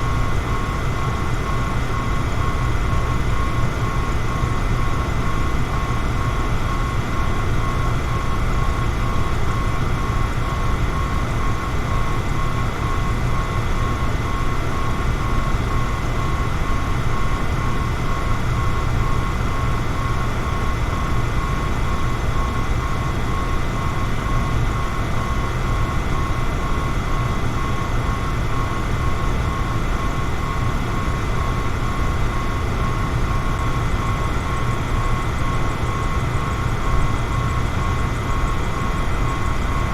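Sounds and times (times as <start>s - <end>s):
electric fan running: 0.0s - 13.4s.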